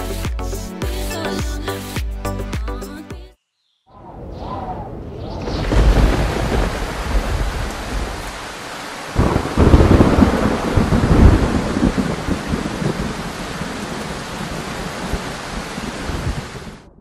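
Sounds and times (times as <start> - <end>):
thunder clap rumbling: 4.0 - 8.4, 9.1 - 17.0
steady rain: 5.4 - 17.0.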